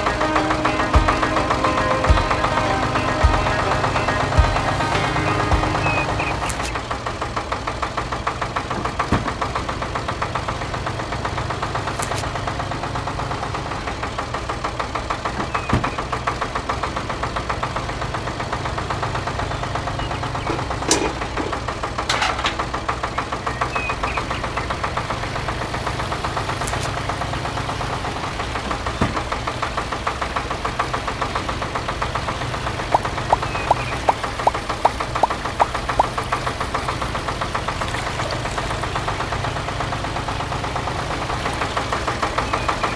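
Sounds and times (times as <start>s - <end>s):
small diesel engine chugging: 0.0s - 42.9s.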